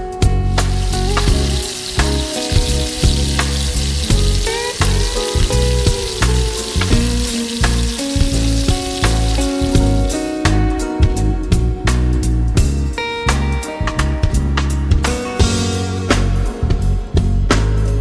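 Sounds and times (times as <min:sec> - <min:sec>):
plucked guitar music: 0:00.0 - 0:16.6
fish frying in hot oil: 0:00.5 - 0:10.2.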